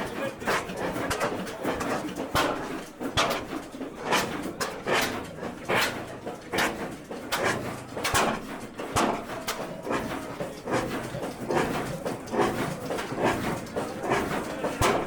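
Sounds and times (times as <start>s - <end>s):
old engine running slowly: 0.0s - 15.0s.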